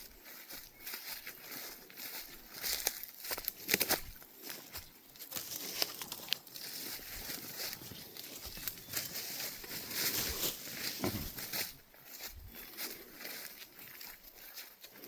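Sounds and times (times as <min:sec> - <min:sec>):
dry leaves rustling and crunching: 0:00.0 - 0:15.0
twigs crackling and snapping: 0:02.6 - 0:11.7.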